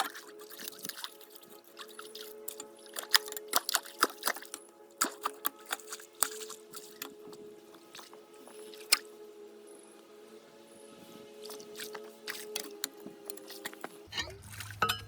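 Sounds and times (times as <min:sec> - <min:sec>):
water splashing: 0:00.0 - 0:07.1, 0:11.4 - 0:15.0.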